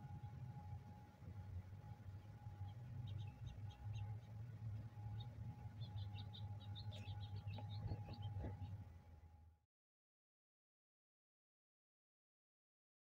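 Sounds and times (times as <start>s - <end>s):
songbirds chirping: 0.0s - 9.4s
steady low hum: 0.0s - 9.6s.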